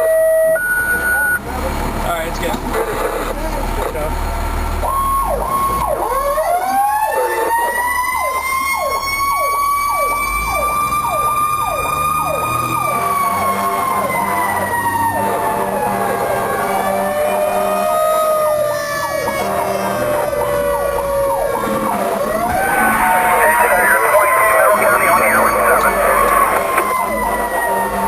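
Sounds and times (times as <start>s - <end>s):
truck engine rumbling: 11.3s - 28.0s
siren rising and winding down: 22.3s - 27.4s.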